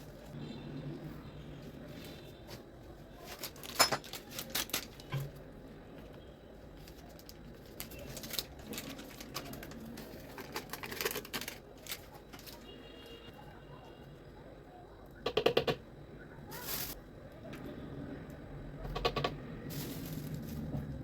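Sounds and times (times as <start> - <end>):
utensils clicking and knocking: 18.8 - 20.4.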